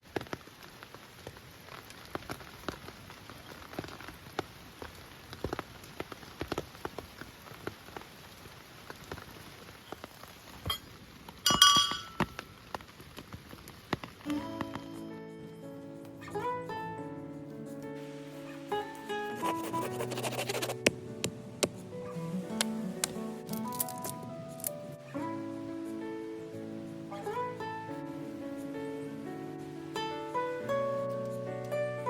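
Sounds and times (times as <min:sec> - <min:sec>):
raindrops striking a surface: 0:00.0 - 0:14.9, 0:20.8 - 0:25.4
faint steady rain hiss: 0:00.0 - 0:32.0
ringing clink: 0:11.5 - 0:12.2.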